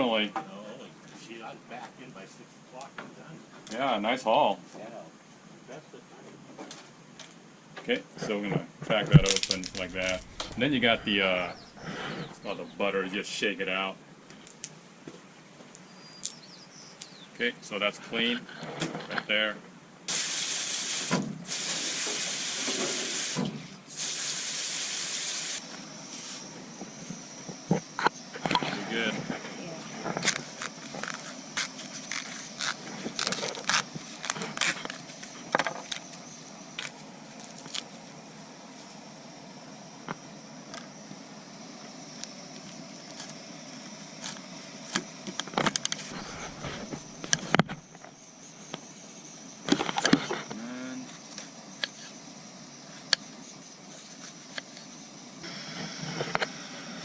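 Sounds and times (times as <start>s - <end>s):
faint hiss: 0.0s - 15.0s, 15.7s - 57.0s
gas stove burner hissing: 9.0s - 13.6s, 20.1s - 36.8s, 51.3s - 57.0s
crab shells cracking: 9.2s - 10.5s.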